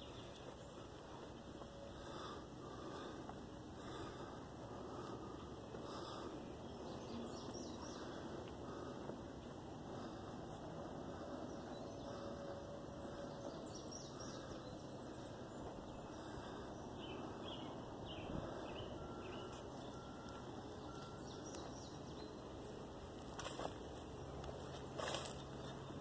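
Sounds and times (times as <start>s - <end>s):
outdoor background hiss: 0.0s - 26.0s
faint bird chirps: 11.3s - 22.7s.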